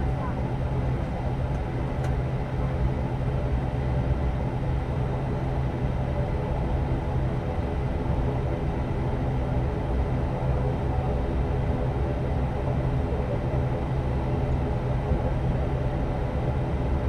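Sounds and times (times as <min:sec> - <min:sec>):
turboprop engines humming in cabin: 0:00.0 - 0:17.0.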